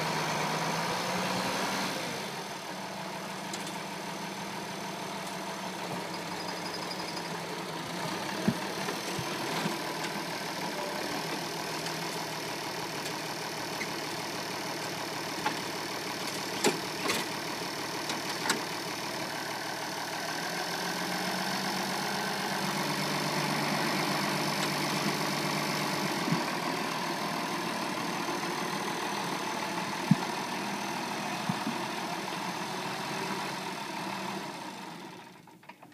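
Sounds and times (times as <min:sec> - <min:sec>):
diesel tractor engine idling: 0:00.0 - 0:35.9.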